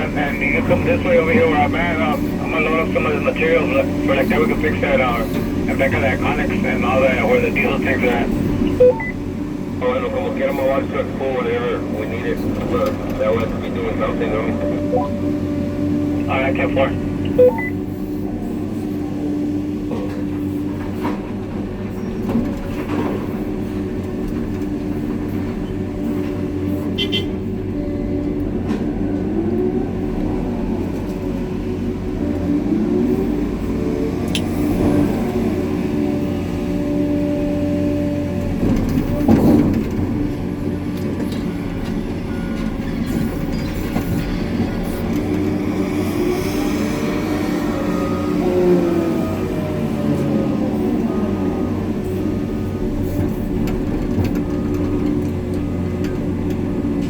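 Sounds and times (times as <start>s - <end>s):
wheel loader diesel engine: 0.0s - 57.0s
short beep: 8.7s - 9.2s, 17.3s - 17.8s
rumbling and rattling: 34.1s - 47.6s, 51.9s - 57.0s.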